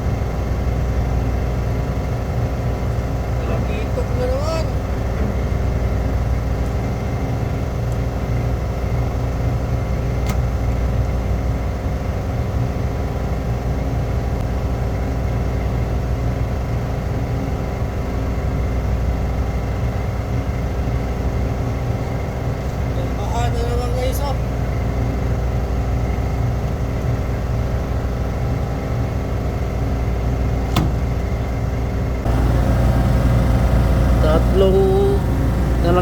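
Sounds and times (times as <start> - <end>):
ship engine drone: 3.1 - 7.4, 32.2 - 36.0.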